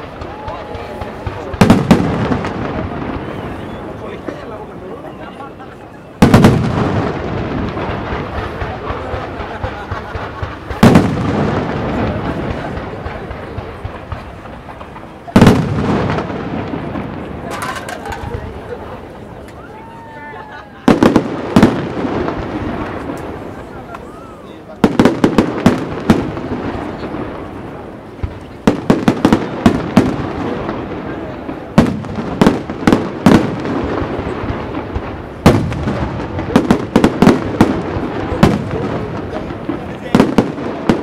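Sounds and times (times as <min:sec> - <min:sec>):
fireworks rumble: 0:00.0 - 0:41.0
small firework pops: 0:06.2 - 0:18.6, 0:20.9 - 0:24.1.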